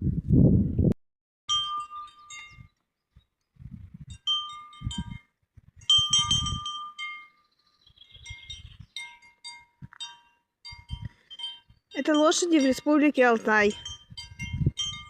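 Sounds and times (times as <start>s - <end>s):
wind chimes ringing: 1.5s - 2.7s, 4.2s - 5.3s, 5.9s - 7.5s, 8.1s - 15.0s.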